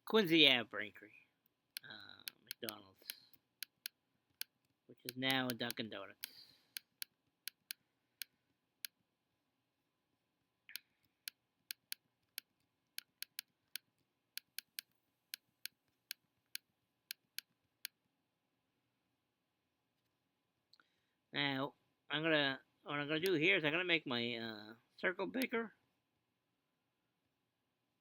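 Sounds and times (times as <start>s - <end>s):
computer mouse clicking: 1.8s - 9.0s, 10.7s - 18.0s.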